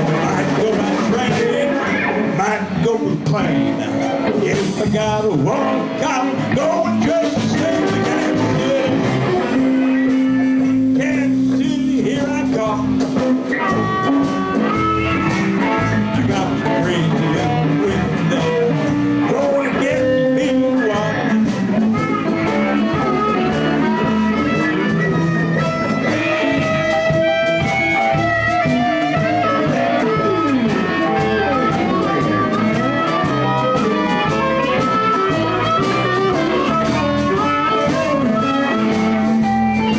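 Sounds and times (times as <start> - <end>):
bass and drums: 0.0 - 39.9
electric guitar: 0.0 - 39.9
sustained lead instrument notes: 21.3 - 39.9.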